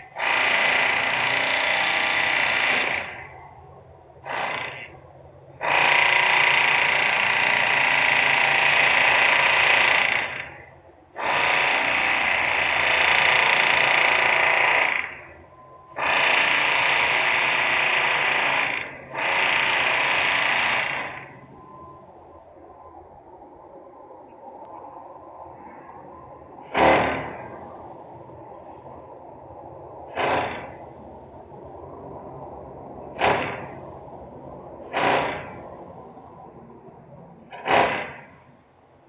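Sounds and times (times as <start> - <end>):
industrial equipment grinding bursts: 0.0 - 3.4, 4.2 - 21.5, 26.6 - 27.6, 30.1 - 31.0, 34.8 - 35.9, 37.5 - 38.4.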